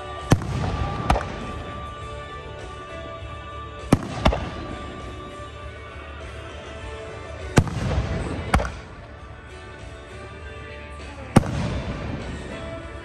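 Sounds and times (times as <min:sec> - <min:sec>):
firework bangs: 0:00.0 - 0:03.1, 0:03.8 - 0:05.5, 0:07.4 - 0:09.2, 0:11.4 - 0:13.0
music: 0:00.0 - 0:13.0.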